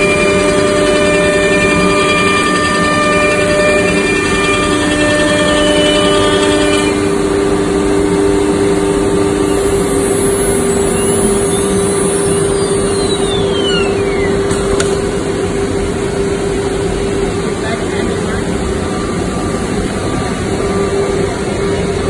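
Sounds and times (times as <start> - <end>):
router spindle whine: 0.0 - 22.0
gliding whines: 8.0 - 16.0.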